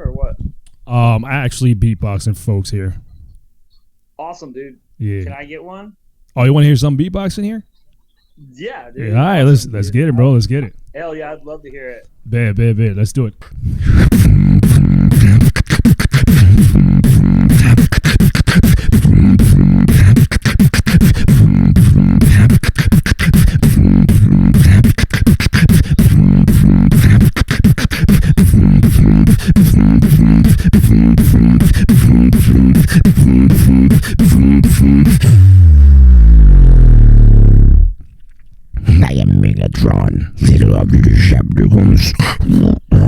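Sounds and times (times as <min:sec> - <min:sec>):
person beatboxing: 0:13.4 - 0:37.9, 0:38.8 - 0:43.0
pulsing bass line: 0:13.8 - 0:27.3, 0:28.0 - 0:38.0.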